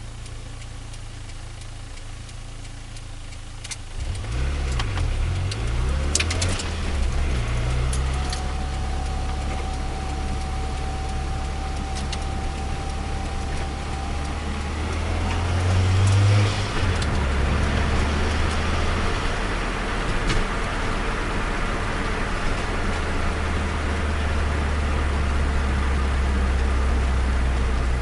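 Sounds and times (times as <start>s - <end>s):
car engine running: 0.0s - 28.0s
thin steady whine: 6.6s - 19.8s.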